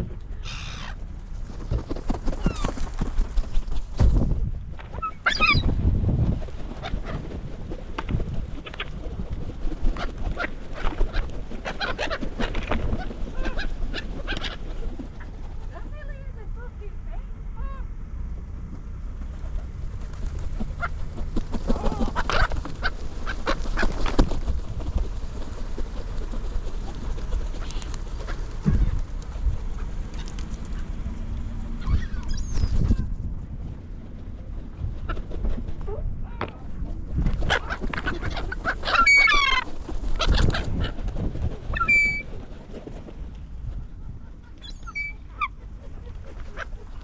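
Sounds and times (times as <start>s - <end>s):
gulls calling and squabbling: 0.0s - 1.0s, 2.3s - 2.8s, 5.0s - 5.7s, 9.9s - 16.5s, 31.6s - 33.1s, 37.3s - 42.4s, 43.8s - 47.0s
steady low rumble: 0.0s - 47.0s.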